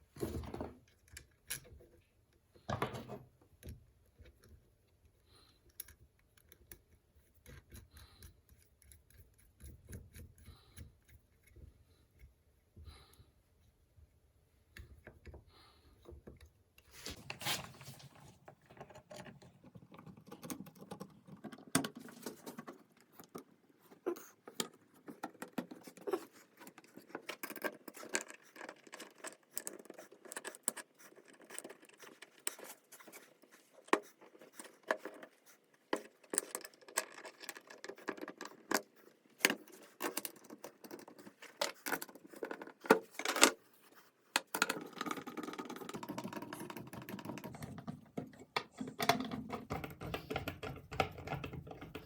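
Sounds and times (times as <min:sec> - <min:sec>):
small metal clicks and rattles: 0:18.6 - 0:43.6.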